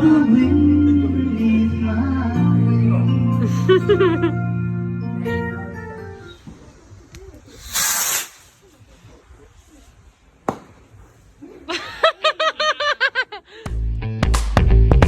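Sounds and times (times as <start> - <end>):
person giggling: 3.4 - 4.4, 11.4 - 13.6
short hiss: 7.5 - 8.8.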